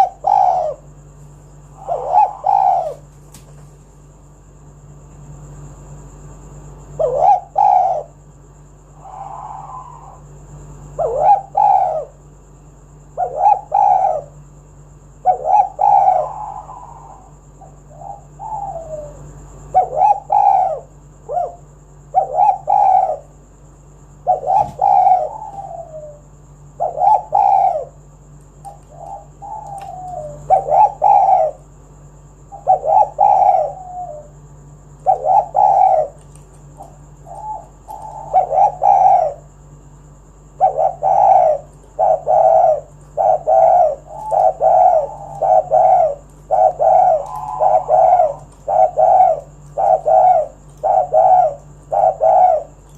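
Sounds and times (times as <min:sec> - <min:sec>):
dove cooing: 0:00.0 - 0:03.1, 0:06.5 - 0:08.3, 0:08.9 - 0:12.3, 0:13.0 - 0:23.5, 0:24.1 - 0:52.9.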